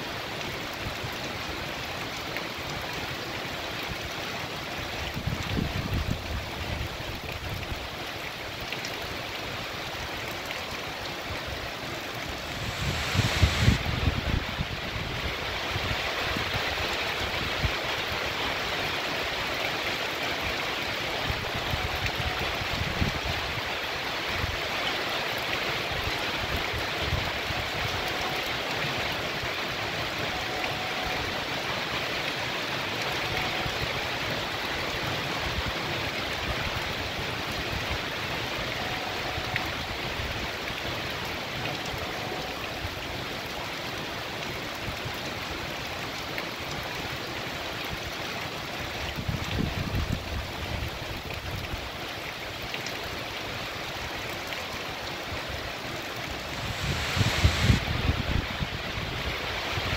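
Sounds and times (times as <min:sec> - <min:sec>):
heavy rain pouring: 0:00.0 - 0:59.9
runoff water rushing: 0:00.0 - 0:59.9
low rumbles: 0:11.8 - 0:15.2, 0:56.1 - 0:59.2.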